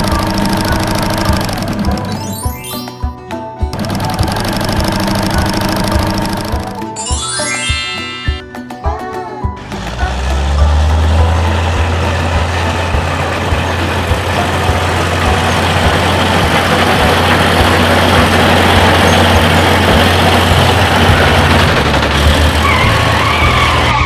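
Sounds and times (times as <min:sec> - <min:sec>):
motor humming and rushing: 0:09.8 - 0:24.0.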